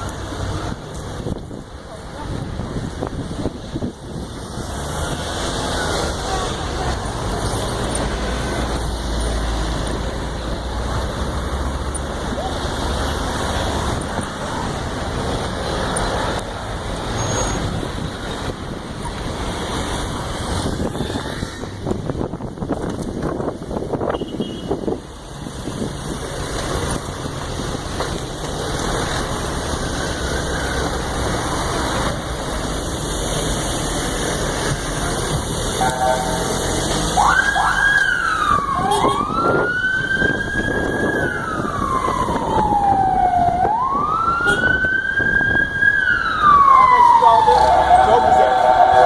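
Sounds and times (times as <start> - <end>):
traffic noise: 0.0 - 49.0
emergency vehicle siren wailing: 34.2 - 49.0
wind on microphone: 38.3 - 46.3.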